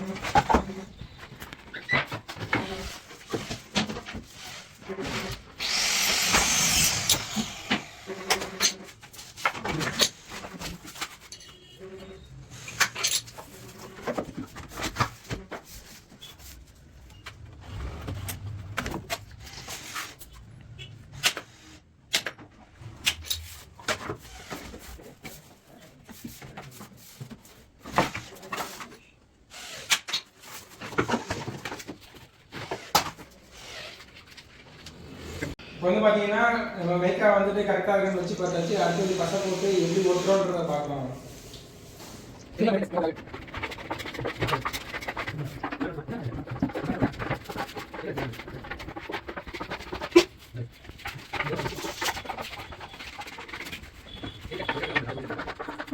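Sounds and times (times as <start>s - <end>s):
loud scraping: 5.0s - 8.6s, 38.0s - 45.7s.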